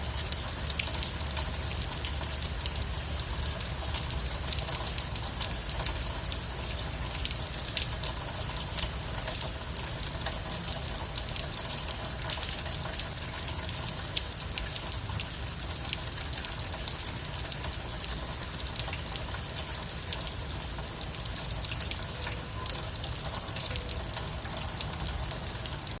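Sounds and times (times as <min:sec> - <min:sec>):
gentle rain hissing: 0:00.0 - 0:26.0
raindrops ticking: 0:00.0 - 0:26.0.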